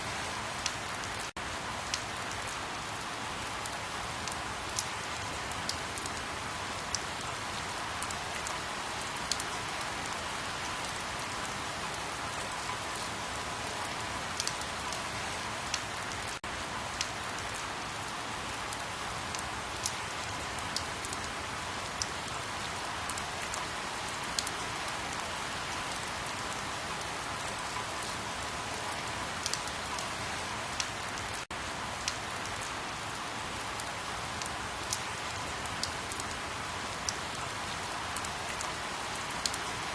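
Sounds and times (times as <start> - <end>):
steady rain hiss: 0.0 - 39.9
sharp rain drop ticks: 1.8 - 2.5, 35.7 - 36.3.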